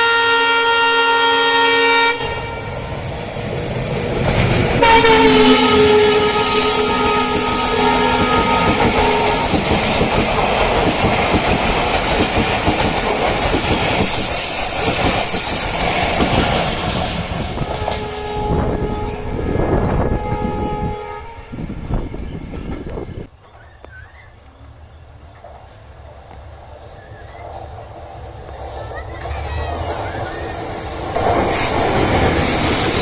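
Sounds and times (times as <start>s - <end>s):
train horn: 0.0s - 2.7s, 4.8s - 9.7s, 17.6s - 22.5s
train wheels clattering: 3.4s - 18.2s.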